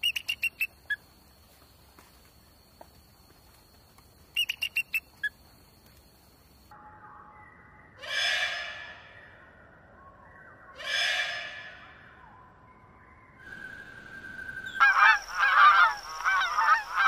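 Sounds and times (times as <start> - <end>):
sharp high bird calls: 0.0 - 1.0, 4.3 - 5.4, 13.4 - 17.0
rasping bird calls: 14.7 - 17.0.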